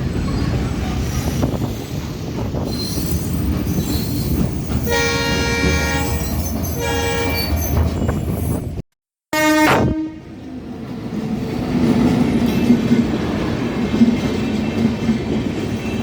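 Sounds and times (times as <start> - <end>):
train wheels rumbling on rails: 0.0 - 8.8, 10.4 - 16.0
locomotive horn blasts: 4.9 - 6.2, 6.8 - 7.5, 9.3 - 10.3.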